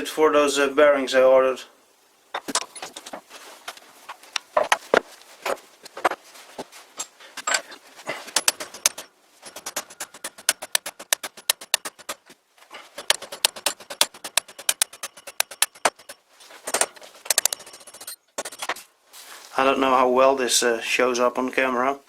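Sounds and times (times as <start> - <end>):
metallic clinks and knocks: 7.0 - 12.3, 12.9 - 18.8.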